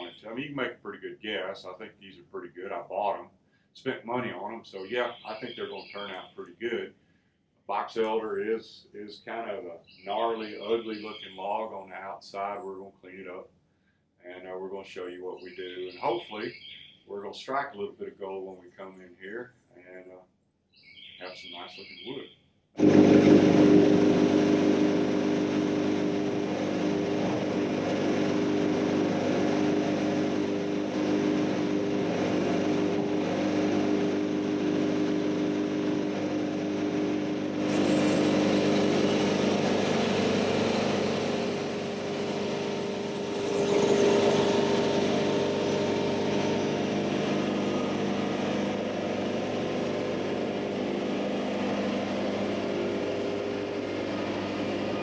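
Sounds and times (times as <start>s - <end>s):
heavy diesel engine running: 22.8s - 55.0s.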